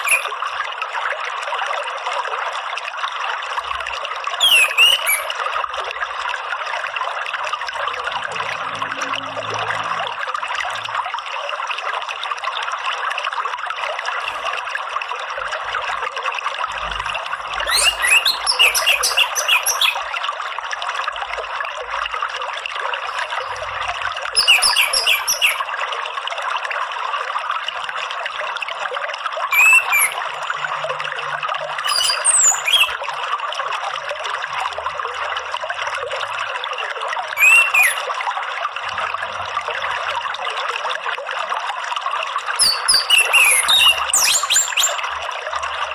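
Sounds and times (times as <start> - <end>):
bird chirps and trills: 0.0 - 0.3, 4.4 - 5.4, 17.6 - 20.0, 24.4 - 25.7, 29.5 - 30.6, 31.8 - 33.0, 37.4 - 38.1, 42.6 - 45.0
running water: 0.0 - 45.9.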